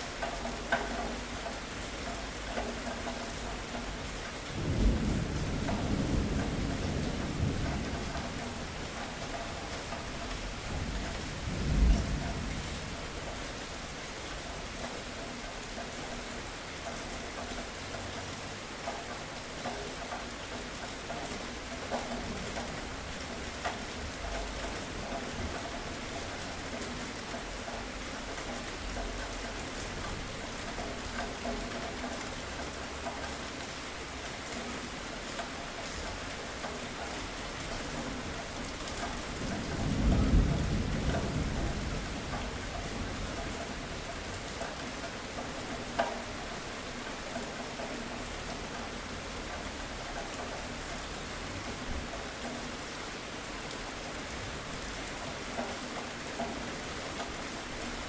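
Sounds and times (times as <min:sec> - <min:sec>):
heavy rain falling: 0:00.0 - 0:58.0
low thunder rumbles: 0:03.4 - 0:13.4, 0:37.9 - 0:44.9
thunder clap: 0:39.2 - 0:43.2.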